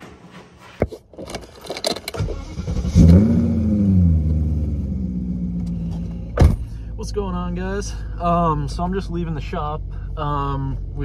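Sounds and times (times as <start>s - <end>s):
car engine cranking and starting: 1.2s - 7.2s.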